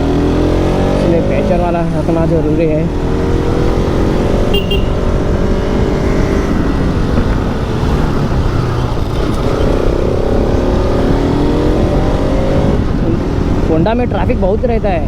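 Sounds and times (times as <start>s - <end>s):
motorcycle engine: 0.0s - 13.7s
wind rumble on microphone: 0.0s - 15.0s
short high beep: 4.5s - 5.1s.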